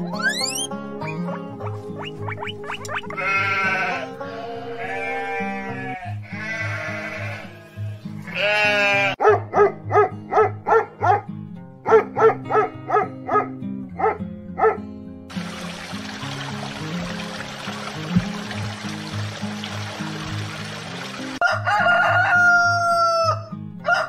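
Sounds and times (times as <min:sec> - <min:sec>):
livestock bleating: 0:03.1 - 0:09.2.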